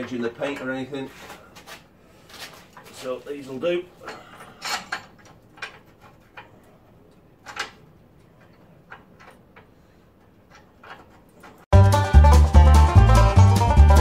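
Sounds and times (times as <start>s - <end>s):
metallic clicks and knocks: 4.1s - 11.7s.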